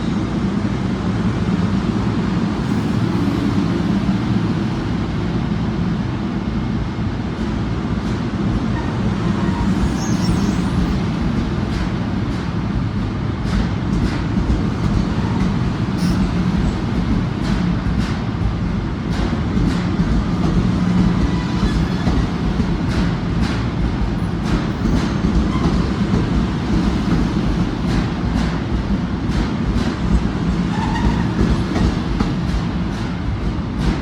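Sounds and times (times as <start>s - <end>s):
train low rumble: 0.0s - 34.0s
sharp clicks and knocks: 10.8s - 34.0s.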